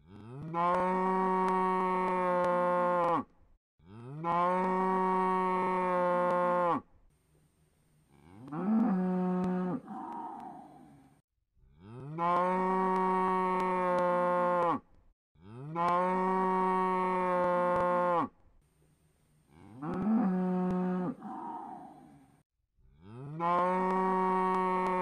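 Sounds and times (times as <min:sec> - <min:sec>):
cow mooing: 0:00.0 - 0:03.3, 0:03.9 - 0:06.8, 0:08.1 - 0:11.0, 0:11.8 - 0:14.8, 0:15.4 - 0:18.3, 0:19.5 - 0:22.2, 0:23.0 - 0:25.0.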